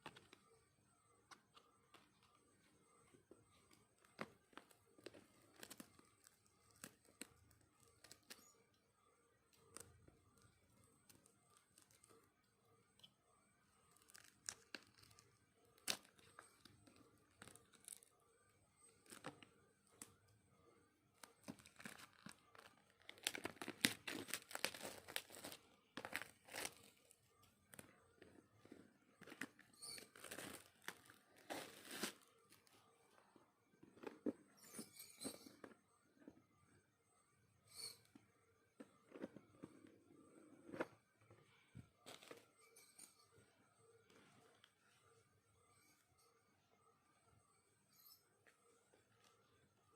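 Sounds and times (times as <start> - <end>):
packaging tearing and crinkling: 21.6 - 27.0, 29.9 - 32.3.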